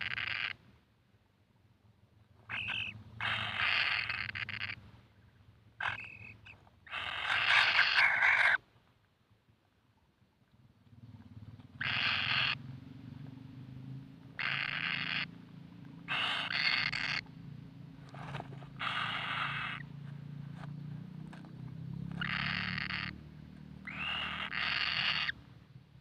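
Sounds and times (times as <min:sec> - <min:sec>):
low steady hum: 0:00.6 - 0:24.0
bird chick hissing screeches: 0:02.5 - 0:04.8, 0:06.9 - 0:08.6, 0:16.1 - 0:17.2, 0:18.8 - 0:19.8, 0:23.9 - 0:25.3.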